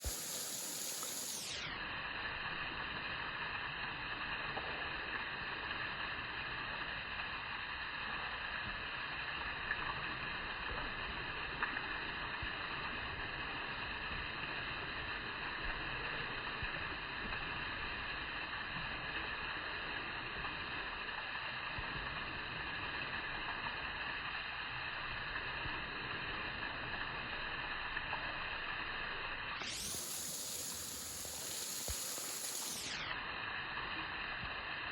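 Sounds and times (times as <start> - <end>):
outdoor rushing hiss: 0.0 - 1.7, 29.6 - 34.1.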